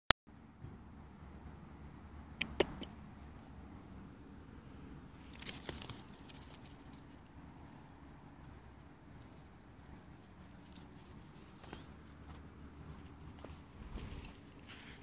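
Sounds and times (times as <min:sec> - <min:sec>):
sharp clicks: 0:02.4 - 0:03.0.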